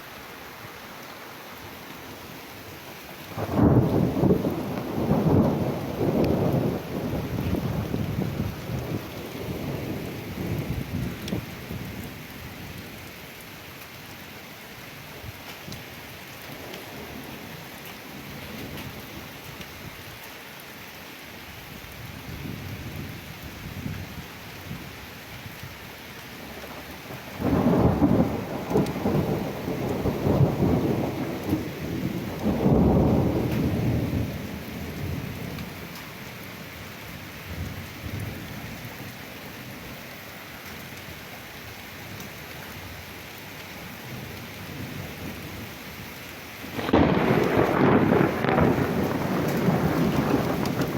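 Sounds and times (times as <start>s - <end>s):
rain hiss: 0.0s - 50.9s
rolling thunder: 3.4s - 11.8s, 26.7s - 35.7s, 46.7s - 50.9s.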